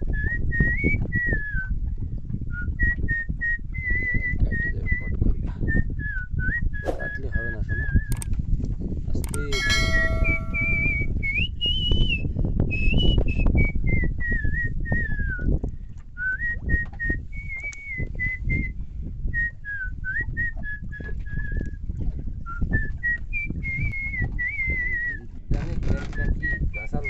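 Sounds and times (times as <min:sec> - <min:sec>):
person whistling a tune: 0:02.6 - 0:05.0, 0:09.6 - 0:15.5, 0:16.2 - 0:18.8, 0:19.4 - 0:21.7, 0:22.5 - 0:25.2.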